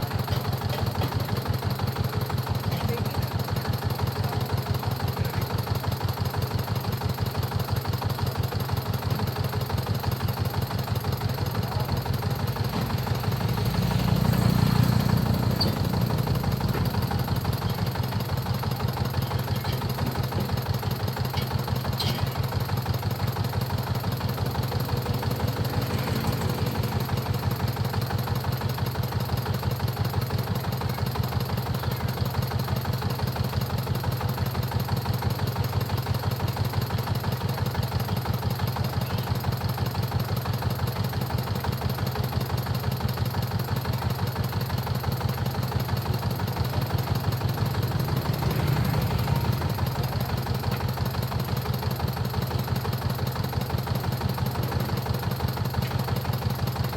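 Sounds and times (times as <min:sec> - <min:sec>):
diesel engine idling: 0:00.0 - 0:56.9.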